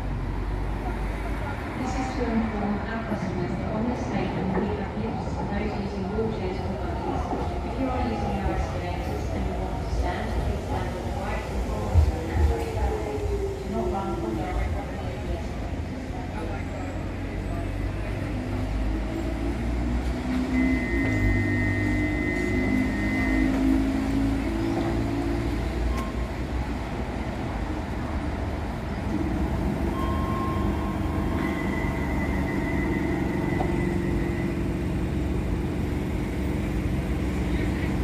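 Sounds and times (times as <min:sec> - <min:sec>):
standing train humming: 0:00.0 - 0:38.0
train motor whine: 0:20.3 - 0:25.0.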